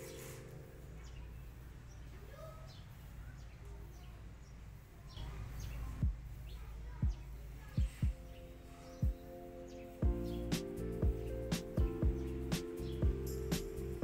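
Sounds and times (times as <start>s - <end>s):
small birds chirping: 0.0s - 14.0s
deep thumps: 6.0s - 6.4s, 7.0s - 8.2s.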